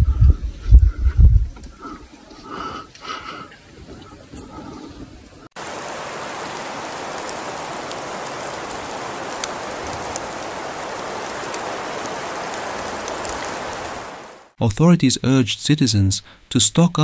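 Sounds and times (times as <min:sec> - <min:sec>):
heavy rain hissing: 0:04.6 - 0:14.6
raindrops ticking: 0:05.5 - 0:14.6.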